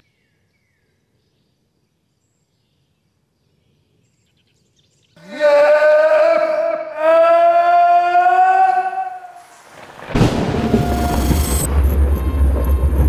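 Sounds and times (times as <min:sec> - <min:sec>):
siren-like wail: 0:10.2 - 0:13.0.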